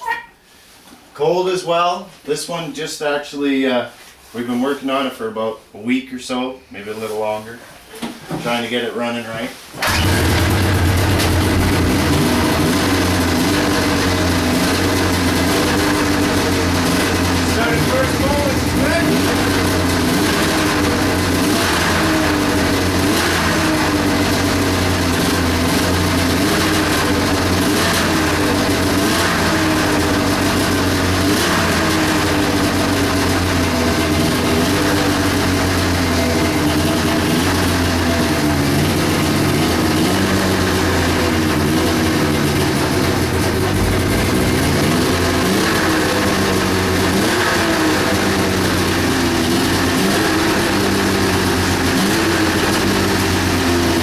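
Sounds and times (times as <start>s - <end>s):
snowmobile engine idling: 9.8s - 54.0s.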